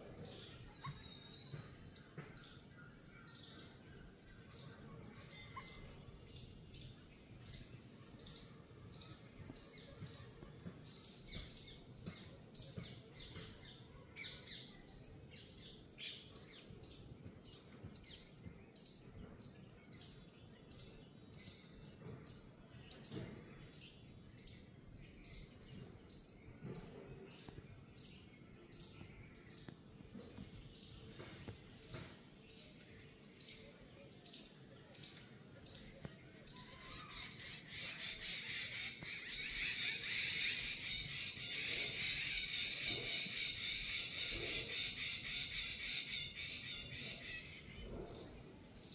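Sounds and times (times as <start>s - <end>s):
low steady background noise: 0.0s - 48.9s
other bird calls: 36.6s - 48.9s.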